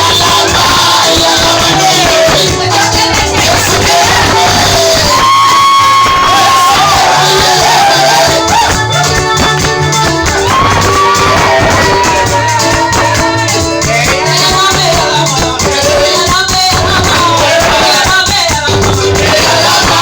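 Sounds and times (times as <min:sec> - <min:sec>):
gospel singing over a band: 0:00.0 - 0:20.0
shaker rattling: 0:07.0 - 0:20.0.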